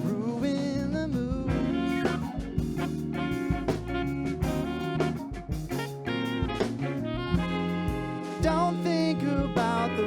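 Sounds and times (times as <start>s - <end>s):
guitar and bass chords: 0.0s - 10.0s
drum kit hits: 1.4s - 9.9s.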